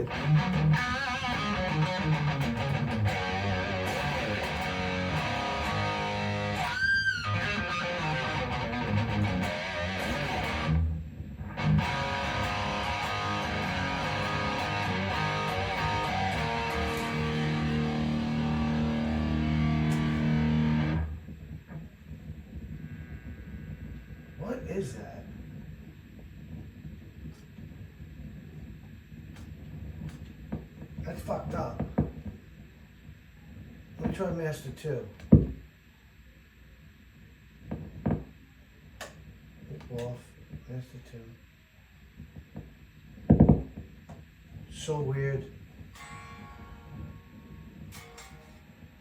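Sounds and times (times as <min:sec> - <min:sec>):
electric guitar playing: 0:00.0 - 0:21.2, 0:46.0 - 0:49.0
amp background noise: 0:00.0 - 0:49.0.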